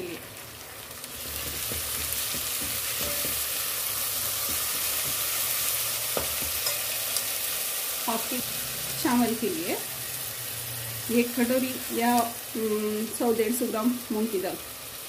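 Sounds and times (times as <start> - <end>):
lentils sizzling in hot oil: 0.0 - 15.0
steel spoon scraping pot: 2.9 - 3.4, 6.6 - 7.3.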